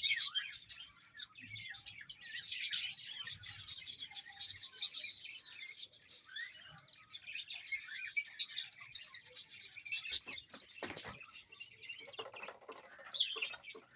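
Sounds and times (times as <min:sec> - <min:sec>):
parrots chirping and squeaking: 0:09.9 - 0:13.9.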